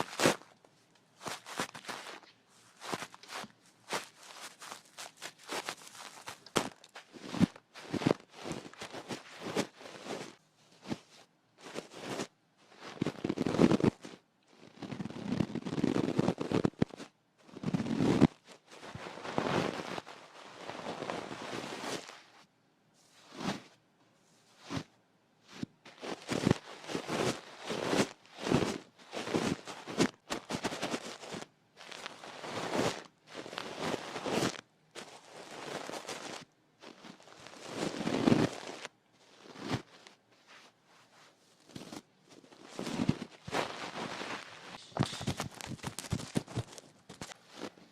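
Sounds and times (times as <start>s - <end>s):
tools scratching a microphone: 42.8s - 47.8s.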